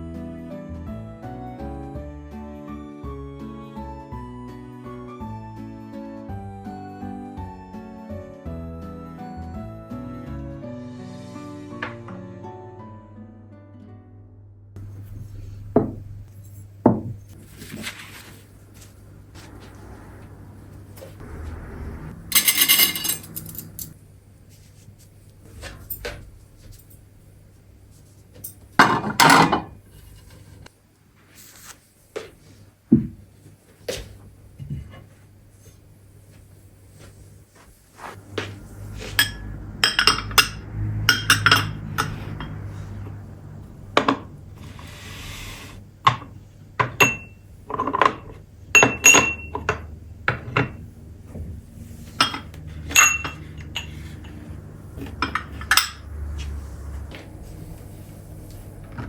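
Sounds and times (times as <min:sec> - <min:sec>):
tableware clinking: 0:14.8 - 0:17.7, 0:22.3 - 0:24.0, 0:28.4 - 0:30.6, 0:38.4 - 0:42.7, 0:44.0 - 0:45.0, 0:46.0 - 0:50.8, 0:52.2 - 0:56.1
low steady hum: 0:14.8 - 0:32.1, 0:32.7 - 0:59.0
scraping or rustling: 0:17.2 - 0:27.0, 0:29.8 - 0:31.8, 0:44.5 - 0:45.8.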